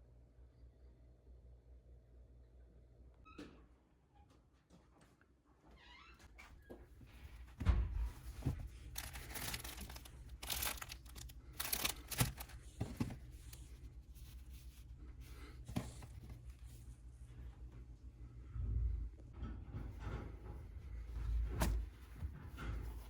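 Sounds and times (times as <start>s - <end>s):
rustling and crinkling: 6.2s - 23.0s
soft thumps: 6.8s - 9.0s.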